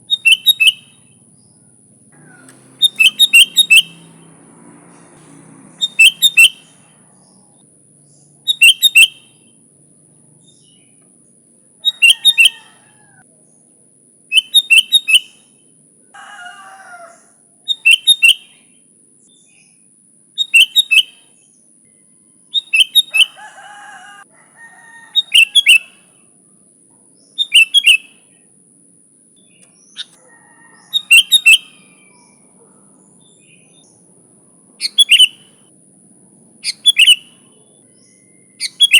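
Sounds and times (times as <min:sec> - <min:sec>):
bulbul calling: 0:00.0 - 0:04.3, 0:04.9 - 0:09.7, 0:10.4 - 0:13.6, 0:14.3 - 0:15.7, 0:17.0 - 0:19.7, 0:20.4 - 0:21.6, 0:22.5 - 0:24.2, 0:25.1 - 0:26.3, 0:27.2 - 0:28.5, 0:29.4 - 0:34.1, 0:34.8 - 0:35.7, 0:36.6 - 0:38.9.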